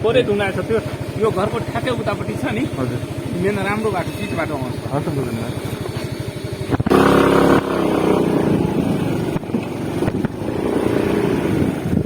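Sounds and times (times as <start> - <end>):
motor scooter engine revving: 0.0 - 12.0.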